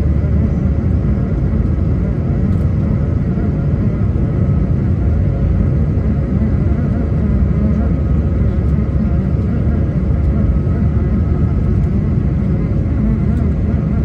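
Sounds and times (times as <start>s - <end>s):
low rumble of aircraft cabin: 0.0s - 14.0s.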